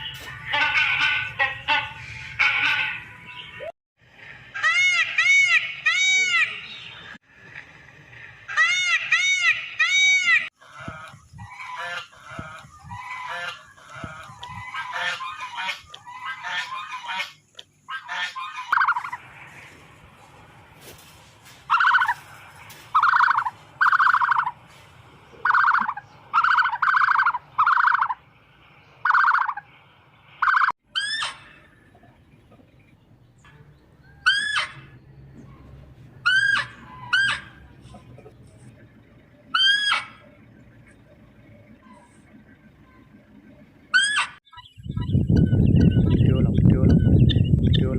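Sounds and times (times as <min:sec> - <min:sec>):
domestic fowl calling: 0:00.0 - 0:03.2, 0:08.5 - 0:19.9, 0:20.8 - 0:28.3, 0:29.0 - 0:29.8, 0:30.4 - 0:31.8, 0:34.0 - 0:35.0, 0:36.1 - 0:38.3, 0:39.1 - 0:40.5, 0:43.9 - 0:45.1.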